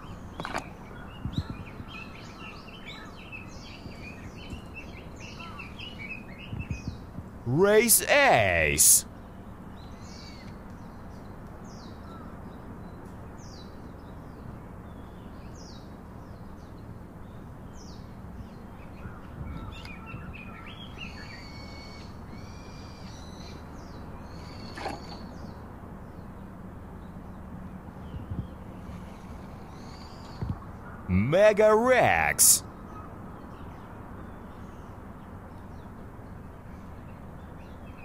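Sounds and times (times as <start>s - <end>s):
birds singing: 0.0s - 7.2s, 9.1s - 31.1s
low outdoor background noise: 0.0s - 38.0s.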